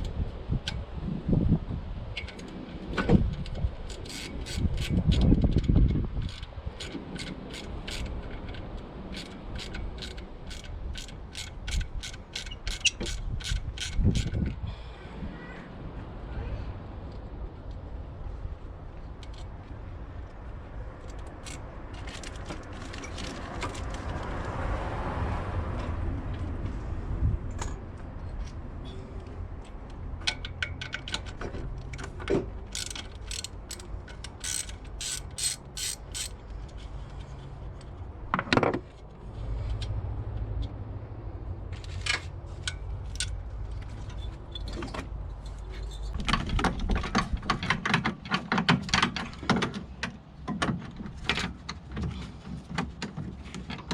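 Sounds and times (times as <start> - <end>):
metal clicks and clanks: 2.2 - 14.6, 21.0 - 24.1, 29.2 - 39.1, 41.7 - 53.9.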